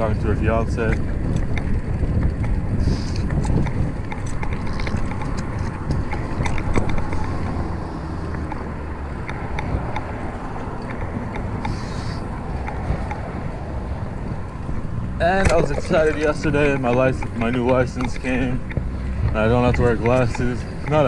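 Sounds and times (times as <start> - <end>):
light clicks and rattles: 0.0 - 21.0
road rumble: 0.0 - 21.0
wind buffeting microphone: 0.0 - 21.0.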